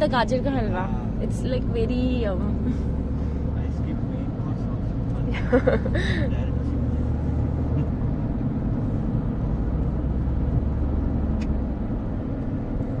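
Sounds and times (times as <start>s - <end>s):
road vehicle rumble from inside: 0.0s - 13.0s.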